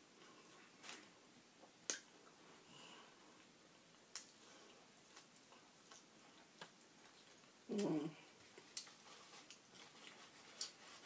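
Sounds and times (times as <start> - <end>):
chewing sandwich: 4.0 - 11.0.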